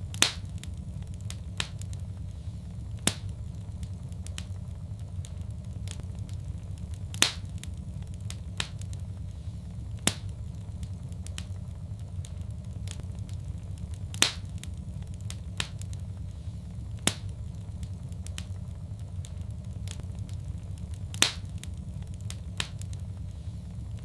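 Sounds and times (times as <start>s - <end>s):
fire crackling and popping: 0.0s - 24.0s
low rumble of flames: 0.0s - 24.0s.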